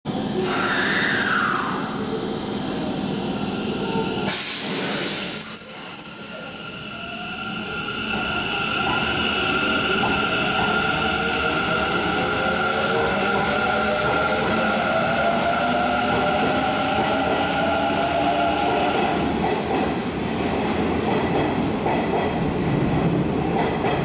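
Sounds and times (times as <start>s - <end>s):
air hiss: 4.2s - 5.9s
train rumble: 7.6s - 24.0s.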